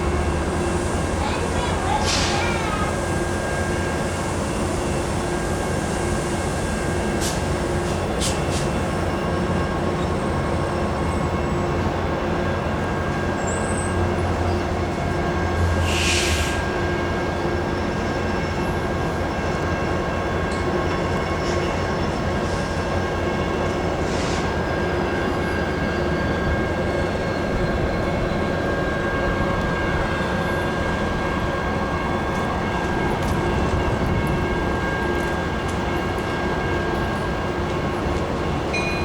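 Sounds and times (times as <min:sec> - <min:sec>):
train rumbling on rails: 0:00.0 - 0:39.0
short hiss: 0:15.8 - 0:16.6.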